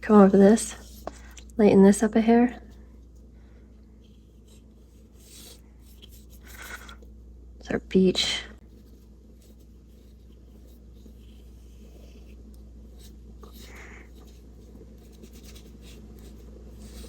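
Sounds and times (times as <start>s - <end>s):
steady low hum: 0.0s - 17.0s
paintbrush scratching on paper: 8.6s - 17.0s.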